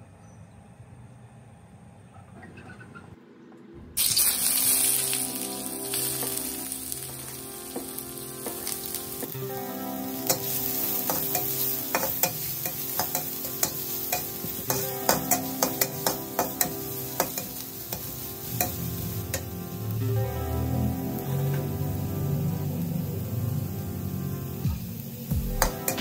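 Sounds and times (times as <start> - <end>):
shallots sizzling in hot oil: 4.0 - 26.0
spatula scraping a wok: 10.3 - 19.6.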